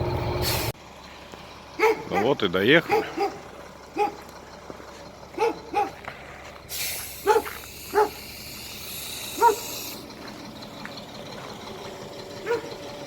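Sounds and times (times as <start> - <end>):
air brakes hissing: 0.4 - 0.8, 6.7 - 10.2
dog barking: 1.8 - 4.2, 5.3 - 6.0, 7.2 - 8.2, 9.4 - 9.7, 12.4 - 12.8.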